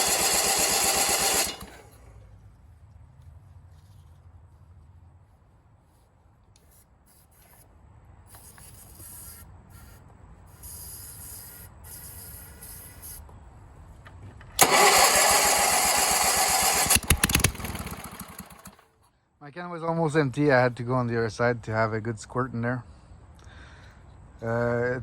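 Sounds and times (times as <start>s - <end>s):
garden tractor engine starting and running: 0.0s - 2.8s, 14.5s - 19.0s.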